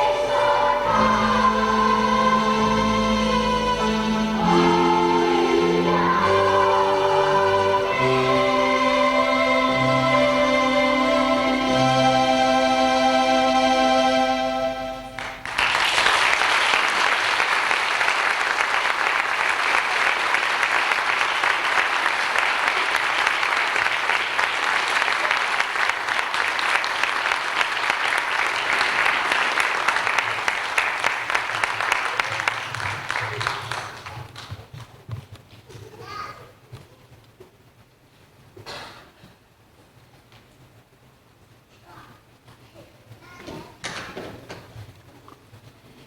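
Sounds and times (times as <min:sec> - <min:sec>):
held musical chord: 0:00.0 - 0:15.5
audience clapping: 0:15.1 - 0:35.0.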